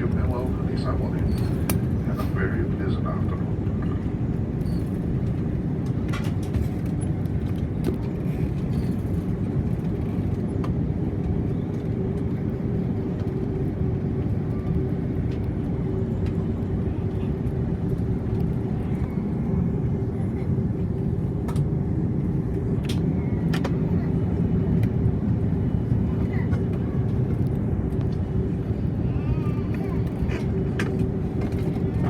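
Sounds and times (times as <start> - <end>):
airliner cabin rumble: 0.0 - 32.0.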